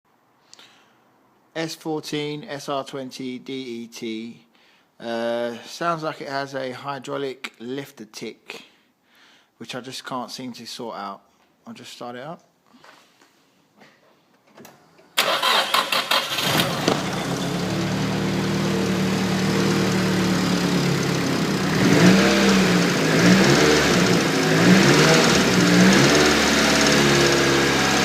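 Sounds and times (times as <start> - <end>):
starter cranking engine: 15.2 - 18.1
engine ticking: 15.2 - 28.0
car engine idling and revving: 16.0 - 28.0.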